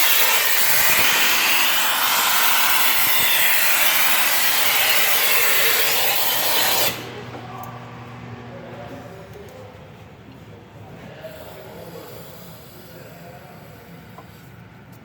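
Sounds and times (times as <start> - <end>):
vacuum cleaner running: 0.0 - 9.3.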